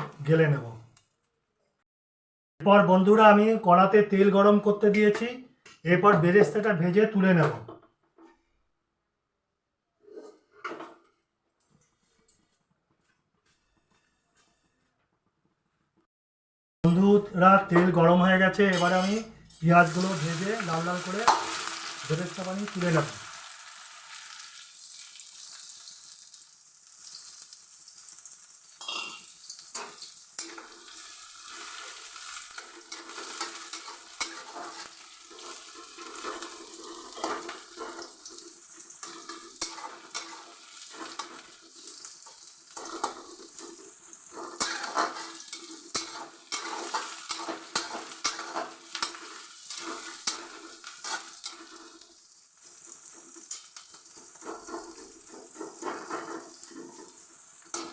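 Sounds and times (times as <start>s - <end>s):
spatula scraping a pan: 13.4s - 14.9s, 18.7s - 24.6s, 28.8s - 57.9s
onions sizzling in hot oil: 19.6s - 57.9s.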